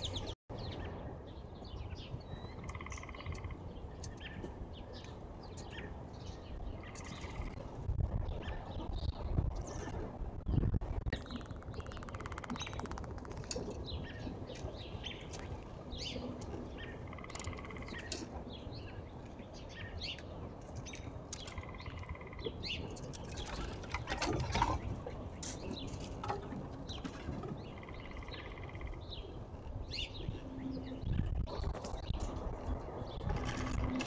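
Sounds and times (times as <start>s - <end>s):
wingbeats flurry: 11.2s - 13.8s.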